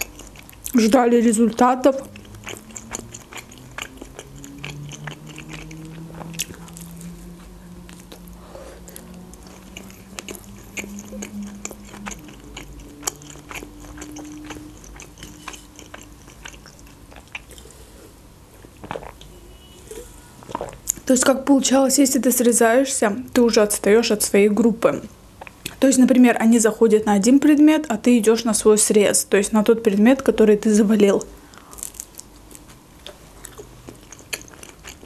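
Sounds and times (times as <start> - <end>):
chewing flatbread: 0.0 - 17.9, 31.5 - 35.0.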